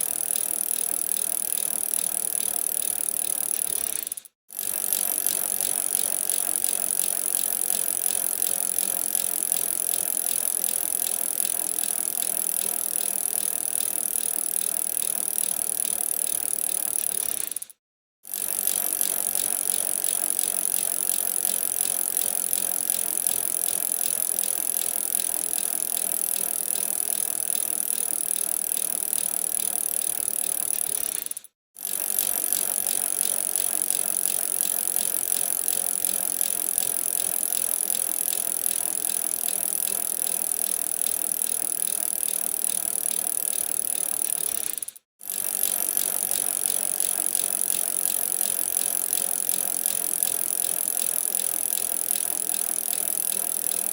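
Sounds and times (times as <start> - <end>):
bicycle rattling: 0.1 - 53.9.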